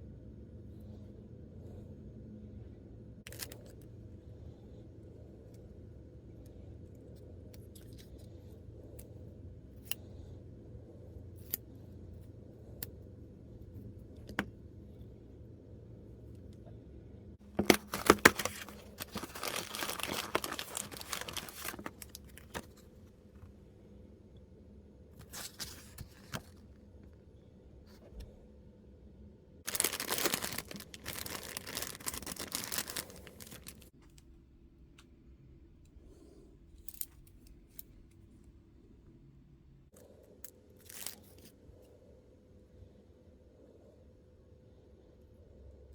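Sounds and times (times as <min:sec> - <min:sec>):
packaging tearing and crinkling: 0:17.6 - 0:22.8, 0:29.7 - 0:33.9, 0:40.8 - 0:41.5.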